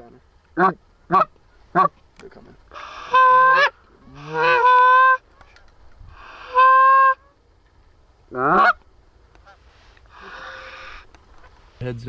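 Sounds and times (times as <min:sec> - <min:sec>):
goose call honks: 0:00.0 - 0:05.2, 0:06.2 - 0:07.3, 0:08.3 - 0:08.8, 0:09.4 - 0:11.1.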